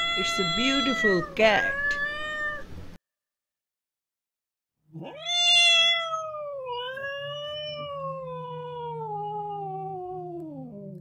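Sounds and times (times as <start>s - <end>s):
cat meowing: 0.0s - 2.7s, 5.0s - 10.7s.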